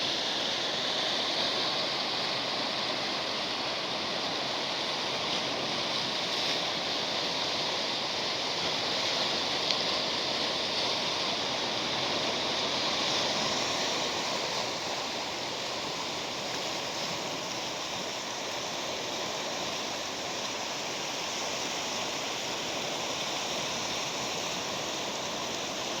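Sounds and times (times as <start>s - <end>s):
sea waves washing ashore: 0.0s - 26.0s.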